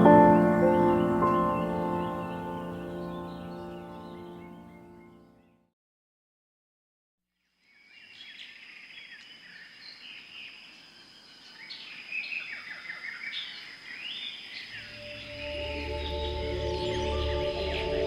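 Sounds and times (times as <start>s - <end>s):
birds calling and chirping: 0.0s - 5.5s.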